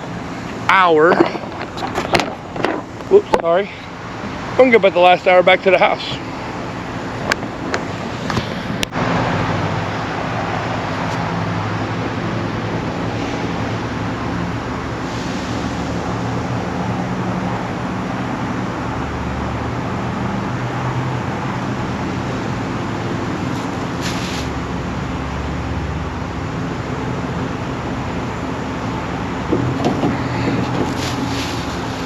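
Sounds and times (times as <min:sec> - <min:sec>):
truck engine humming: 0:00.0 - 0:32.0
constant rushing noise: 0:26.2 - 0:32.0.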